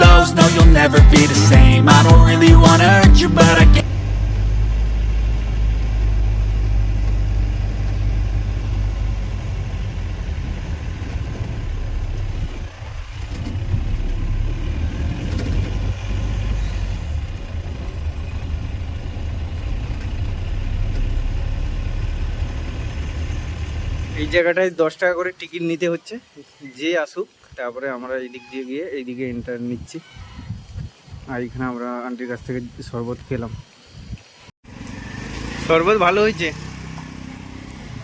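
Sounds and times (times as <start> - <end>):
car engine and road noise inside: 0.9 - 24.4.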